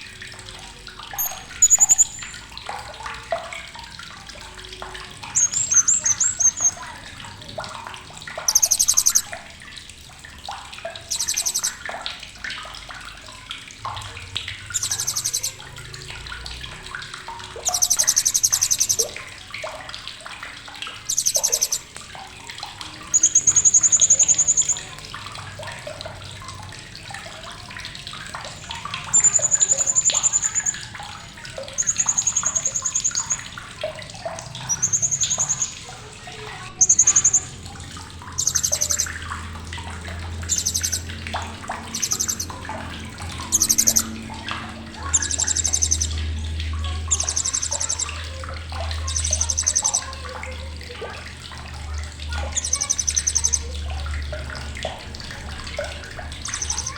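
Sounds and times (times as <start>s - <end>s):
parrot high-pitched calls: 1.2s - 2.4s, 5.3s - 6.8s, 8.5s - 9.3s, 11.0s - 11.8s, 14.7s - 15.6s, 17.6s - 19.2s, 21.1s - 22.0s, 22.9s - 25.0s, 29.0s - 30.9s, 31.7s - 33.4s, 34.6s - 35.9s, 36.5s - 37.6s, 38.3s - 39.2s, 40.5s - 41.1s, 41.9s - 42.6s, 43.4s - 44.2s, 45.0s - 46.2s, 47.0s - 48.2s, 48.9s - 50.1s, 52.5s - 53.7s, 56.4s - 56.9s.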